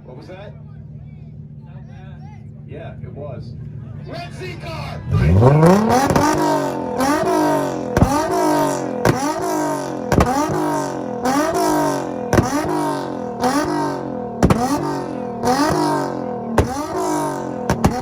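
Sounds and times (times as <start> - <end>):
car engine revving with sharp crack: 4.7 - 18.0.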